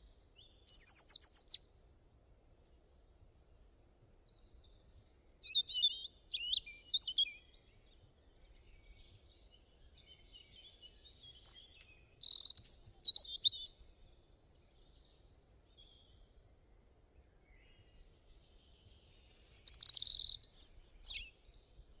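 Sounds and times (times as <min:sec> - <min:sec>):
songbird warbling: 0:11.3 - 0:13.7, 0:19.2 - 0:21.3.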